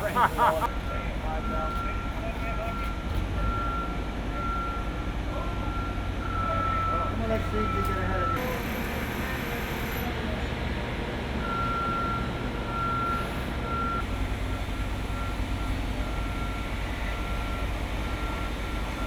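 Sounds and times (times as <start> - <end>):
diesel engine running: 0.0 - 19.0
backup alarm beeping: 5.6 - 8.8, 11.4 - 19.0.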